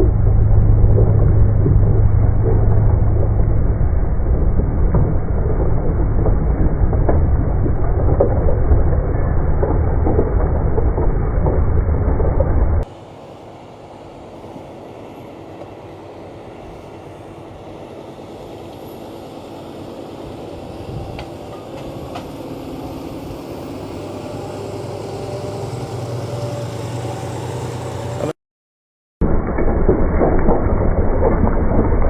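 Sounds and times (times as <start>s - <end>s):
tractor diesel engine running: 0.0s - 28.4s.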